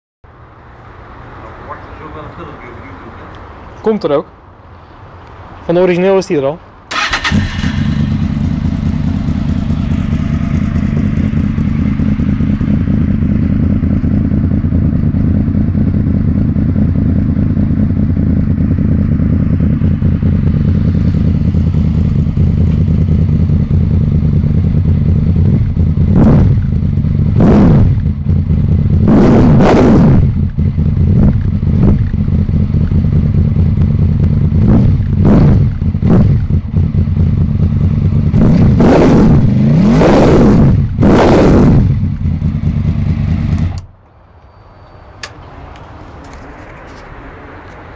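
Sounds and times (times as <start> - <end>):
motorcycle engine idling: 6.9 - 27.4, 30.3 - 38.4, 41.9 - 43.9
motorcycle throttle blips: 6.9 - 47.1.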